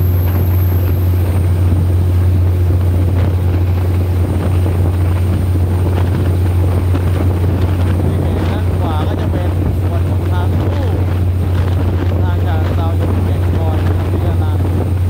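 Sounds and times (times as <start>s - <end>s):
train rumbling on track: 0.0s - 15.0s
wind buffeting microphone: 0.0s - 15.0s.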